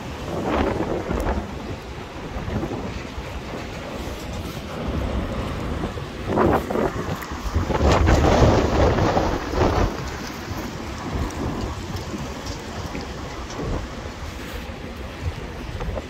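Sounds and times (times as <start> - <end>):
storm wind buffeting microphone: 0.0 - 16.0.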